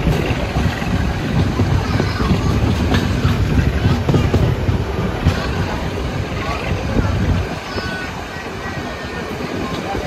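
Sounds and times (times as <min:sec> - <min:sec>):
clacks over rails: 0:00.0 - 0:10.0
train wheels rumbling: 0:00.0 - 0:10.0.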